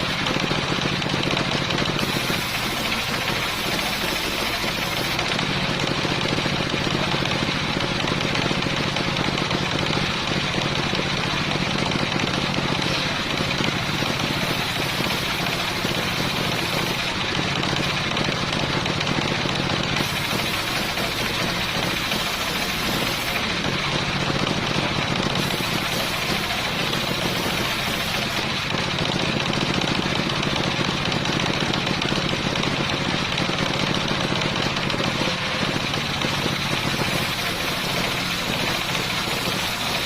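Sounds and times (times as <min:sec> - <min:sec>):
circular saw cutting wood: 0:00.0 - 0:07.8, 0:12.6 - 0:18.3, 0:19.5 - 0:30.9, 0:35.0 - 0:40.0
high hiss of sawing: 0:02.0 - 0:05.2, 0:13.8 - 0:17.1, 0:20.0 - 0:23.5, 0:25.4 - 0:28.5, 0:36.4 - 0:40.0.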